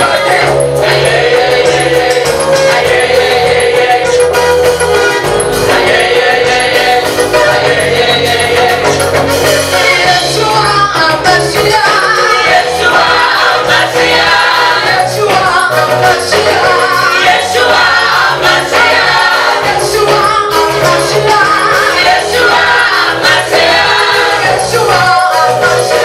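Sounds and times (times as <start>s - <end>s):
bass line: 0.0s - 26.0s
gospel choir singing: 0.0s - 26.0s
jingling percussion beat: 0.0s - 26.0s.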